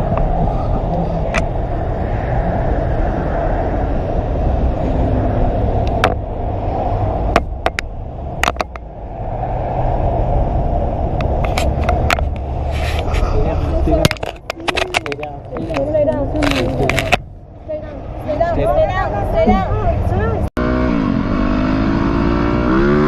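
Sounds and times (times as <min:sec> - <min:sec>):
wind rush: 0:00.0 - 0:20.5
motorcycle engine: 0:20.6 - 0:23.0.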